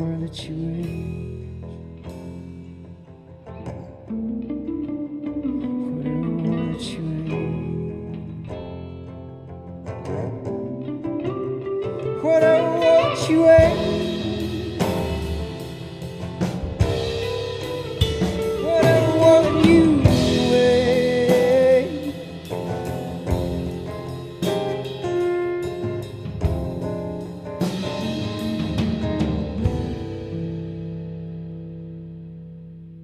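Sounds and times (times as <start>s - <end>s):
rock band playing: 0.0s - 33.0s
drum kit hits: 13.0s - 31.3s.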